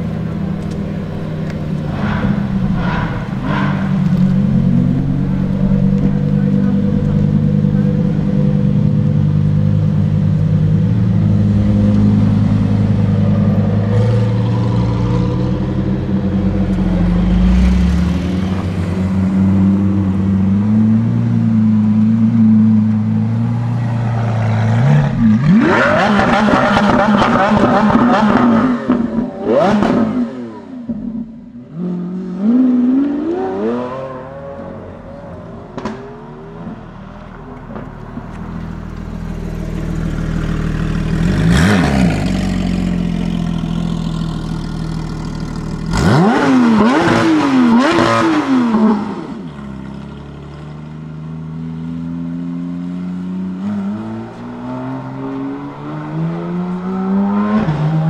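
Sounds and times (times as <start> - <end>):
sports car engines idling: 0.0 - 25.6, 34.8 - 47.0, 48.7 - 53.6
car accelerating hard: 0.0 - 36.9, 38.9 - 58.0.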